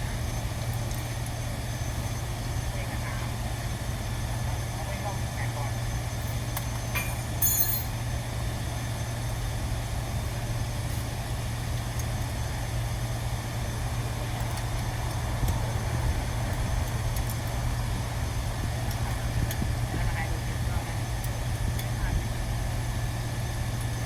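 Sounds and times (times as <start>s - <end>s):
low machine hum: 0.0s - 24.0s
sharp clink: 6.9s - 8.0s.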